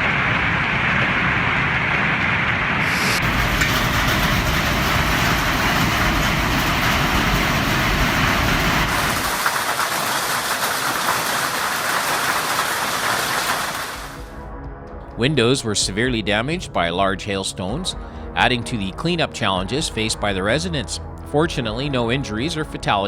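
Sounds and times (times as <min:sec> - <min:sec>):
low rumble: 0:00.0 - 0:09.4, 0:14.0 - 0:22.2
hail and heavy rain pelting: 0:00.0 - 0:14.3.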